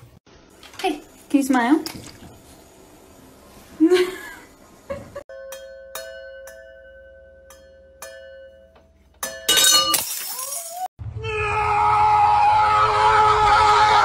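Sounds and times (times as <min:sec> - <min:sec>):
glasses tapped and ringing: 0:05.3 - 0:10.0.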